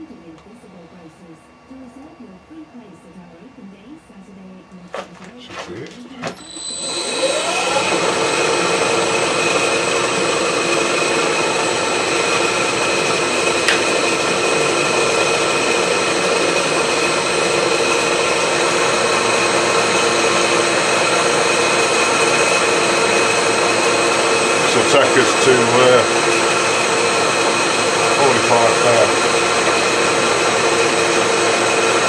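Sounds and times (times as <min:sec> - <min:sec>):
machine tool motor whining: 0:06.2 - 0:32.0.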